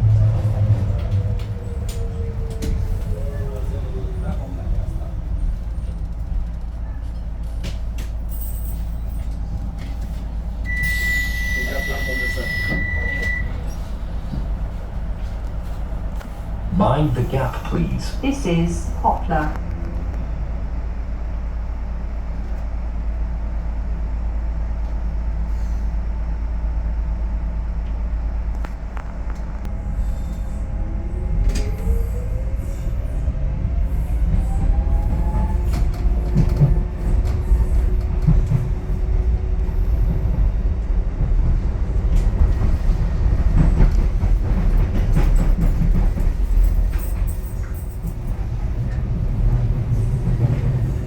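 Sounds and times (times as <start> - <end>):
train motor hum and whine: 0.0 - 23.6
train wheels rumbling on track: 0.0 - 51.0.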